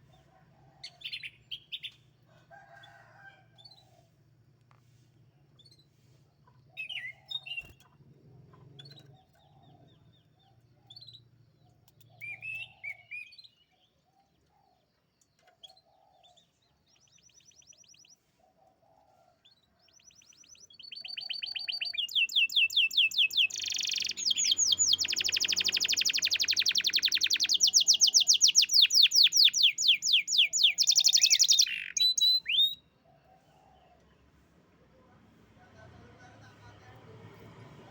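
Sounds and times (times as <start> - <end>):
canary chirping and trilling: 6.5 - 14.0, 19.5 - 32.9.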